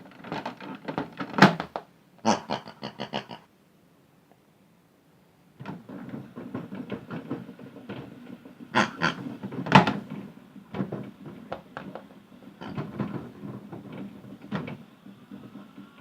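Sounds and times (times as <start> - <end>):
toys knocking and rattling in drum: 0.0 - 1.9, 5.6 - 16.0.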